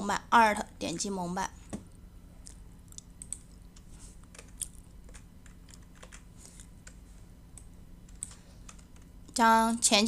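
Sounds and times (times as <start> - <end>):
faint low hum: 0.0 - 10.0
computer keyboard clicks: 4.3 - 7.0, 7.6 - 9.1.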